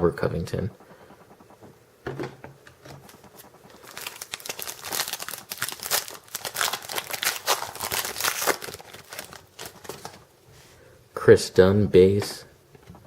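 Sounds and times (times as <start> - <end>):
plastic wrapper tearing and crinkling: 3.8 - 10.2.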